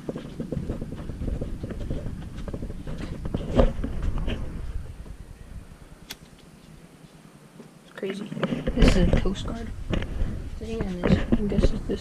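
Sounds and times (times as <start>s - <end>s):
footsteps: 0.0s - 5.2s, 6.1s - 12.0s
microphone handling rumble: 0.0s - 5.8s, 8.3s - 12.0s.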